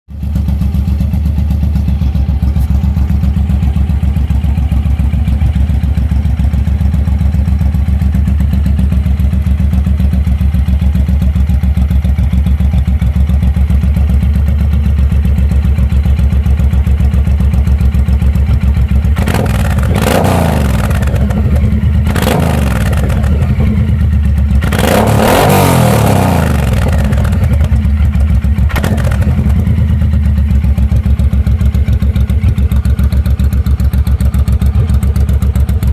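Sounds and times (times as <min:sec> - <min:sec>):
motorcycle engine idling and revving: 0:00.1 - 0:35.9.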